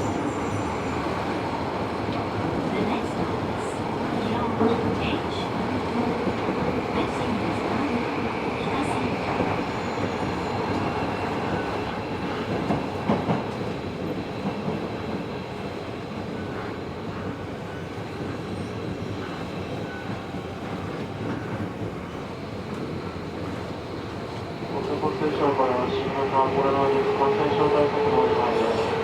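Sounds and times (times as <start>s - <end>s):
subway train running noise: 0.0s - 29.0s.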